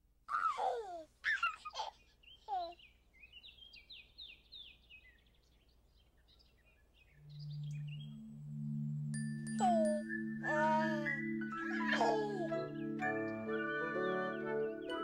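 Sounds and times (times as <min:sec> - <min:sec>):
low steady musical tone: 0:07.1 - 0:15.0.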